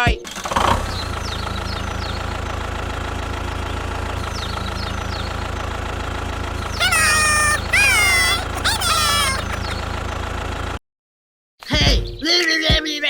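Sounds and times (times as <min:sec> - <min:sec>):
small engine idling: 0:00.3 - 0:10.8
high-pitched gliding squeak: 0:06.8 - 0:09.7.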